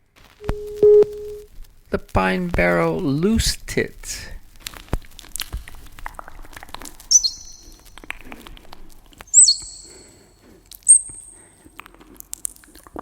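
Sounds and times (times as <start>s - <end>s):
high whistled bird-like calls: 7.1s - 7.8s, 9.3s - 10.1s, 10.9s - 11.4s.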